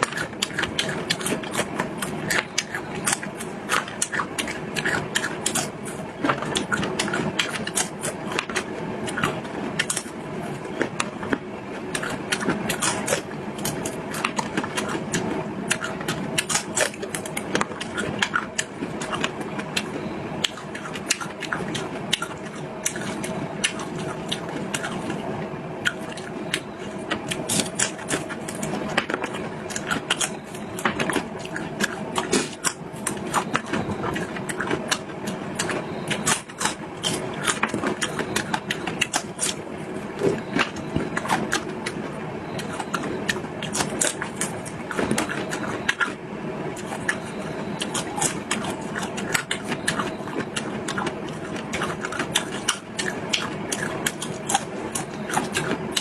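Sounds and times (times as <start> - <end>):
person chewing: 0.0 - 56.0.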